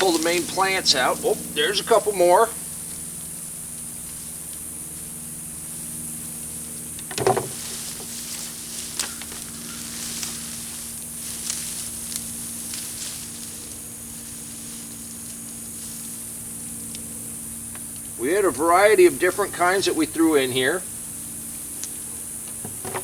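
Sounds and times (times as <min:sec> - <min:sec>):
sharp snaps of stems: 0:00.0 - 0:01.2, 0:06.9 - 0:13.9, 0:21.6 - 0:22.8
low hum: 0:00.0 - 0:03.9
dry plants rustling and crackling: 0:00.0 - 0:23.0
high insect drone: 0:00.0 - 0:23.0.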